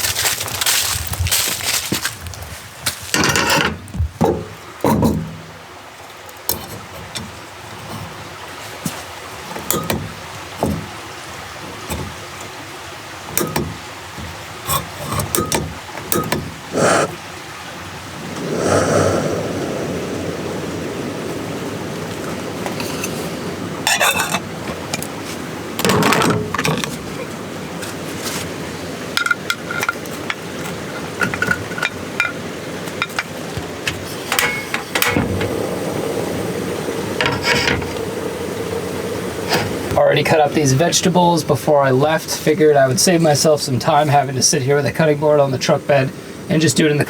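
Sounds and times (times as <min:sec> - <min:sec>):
camp stove hissing: 0:04.4 - 0:17.4, 0:18.1 - 0:27.6, 0:28.5 - 0:47.0
camp stove lighting with whoosh: 0:33.9 - 0:40.4.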